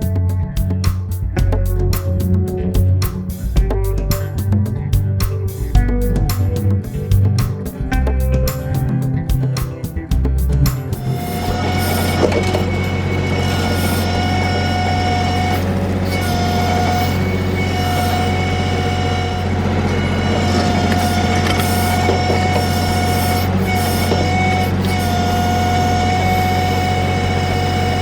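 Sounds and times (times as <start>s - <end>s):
tractor diesel engine running: 7.9s - 28.0s
hydraulic whine: 11.0s - 28.0s.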